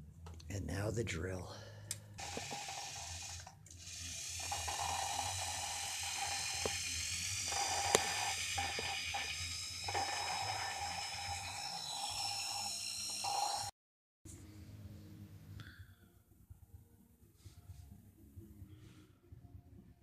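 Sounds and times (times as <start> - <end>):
electric drill whining: 2.2 - 13.8.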